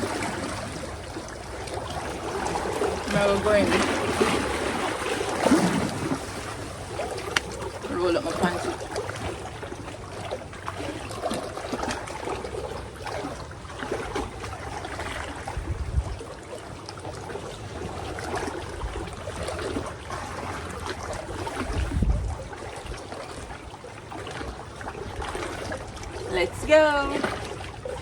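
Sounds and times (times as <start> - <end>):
shallow water trickling: 0.0 - 28.0
low rumbles on microphone: 15.5 - 16.3, 21.2 - 22.9.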